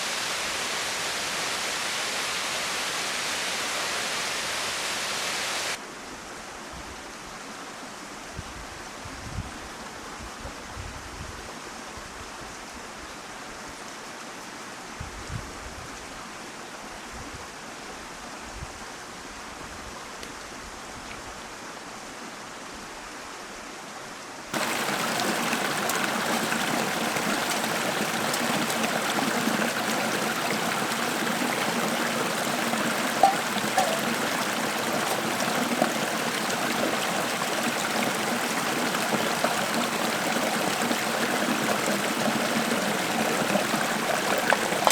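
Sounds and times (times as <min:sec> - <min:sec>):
stream water running over rocks: 0:24.5 - 0:44.9.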